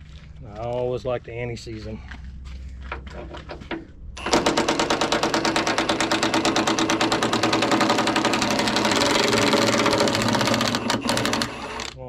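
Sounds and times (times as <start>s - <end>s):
impact wrench hammering: 4.2s - 11.9s.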